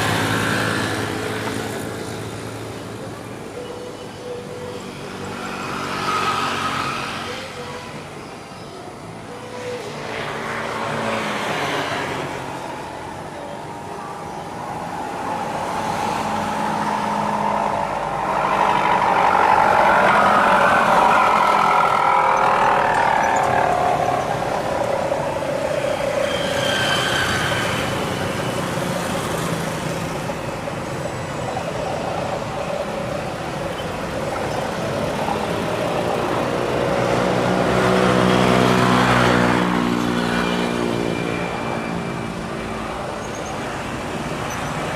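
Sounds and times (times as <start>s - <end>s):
jet engines roaring at takeoff: 14.5s - 44.6s.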